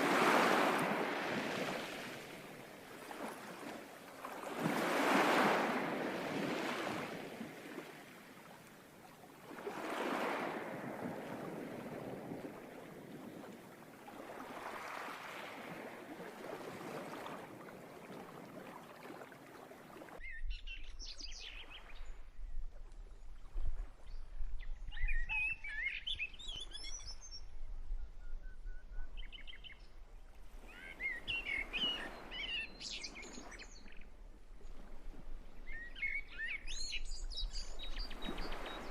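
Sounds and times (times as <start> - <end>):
waves washing in: 0.0 - 20.2, 38.1 - 38.9.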